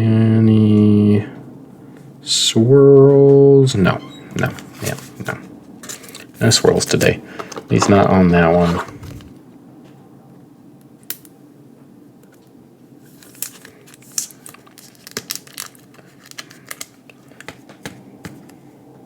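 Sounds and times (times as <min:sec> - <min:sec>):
plastic packaging crinkling: 0:04.4 - 0:09.4, 0:13.0 - 0:17.8.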